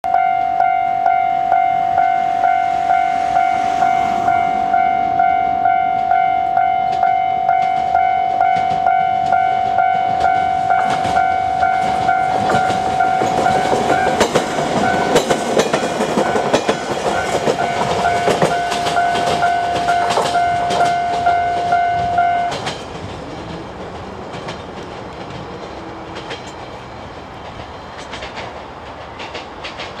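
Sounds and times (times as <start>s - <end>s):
level crossing warning bell: 0.0s - 22.8s
train passing: 0.1s - 30.0s
wheels clicking over rail joints: 5.6s - 30.0s.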